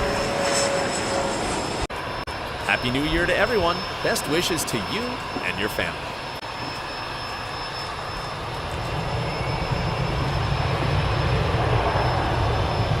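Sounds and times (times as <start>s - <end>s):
airplane engine rumble: 0.0s - 13.0s.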